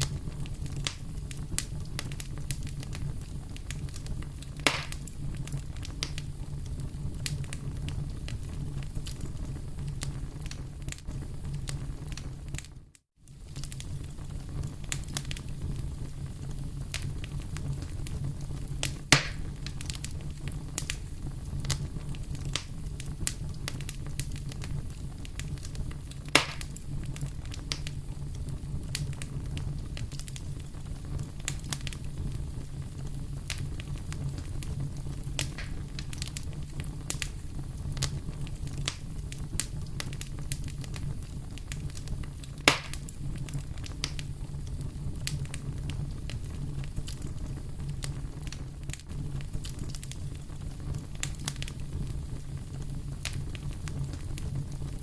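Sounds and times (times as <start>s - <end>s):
loud fire pops: 0.0s - 55.0s
low fire rumble: 0.0s - 55.0s
wood fire crackling: 0.0s - 55.0s.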